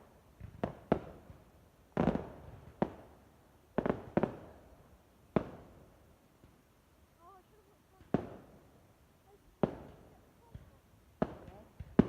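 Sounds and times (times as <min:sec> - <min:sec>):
fireworks banging: 0:02.0 - 0:03.1, 0:09.5 - 0:12.0.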